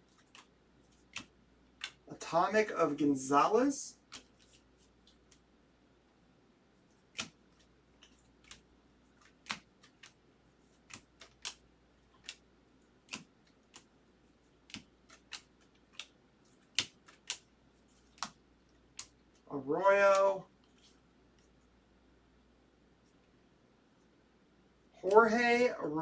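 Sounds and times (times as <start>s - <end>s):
trading cards clicking: 0.1s - 2.1s, 7.1s - 10.2s, 10.8s - 13.9s, 14.6s - 19.4s.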